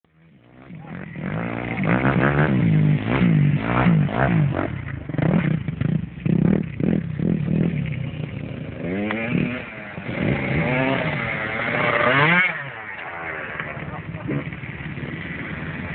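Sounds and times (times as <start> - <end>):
motocross bike engines revving: 0.1 - 15.9.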